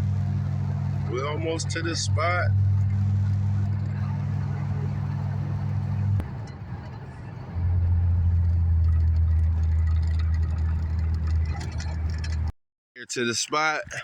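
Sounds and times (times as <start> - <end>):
car road and engine drone: 0.0 - 12.5.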